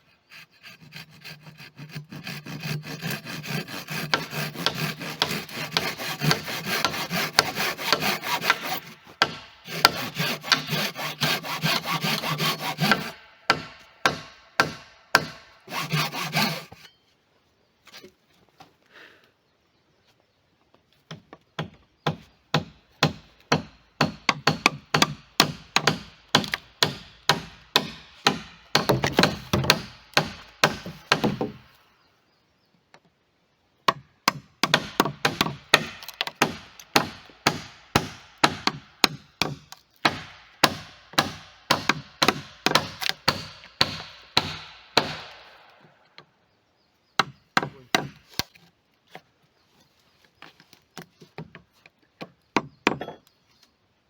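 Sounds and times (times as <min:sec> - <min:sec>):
hand tool striking wood: 0:01.9 - 0:16.9, 0:21.1 - 0:31.6, 0:33.9 - 0:45.4, 0:52.6 - 0:53.3.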